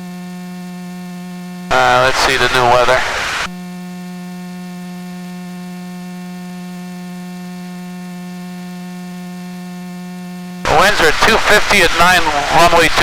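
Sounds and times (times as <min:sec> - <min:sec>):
electrical hum: 0:01.7 - 0:03.5, 0:10.6 - 0:13.0.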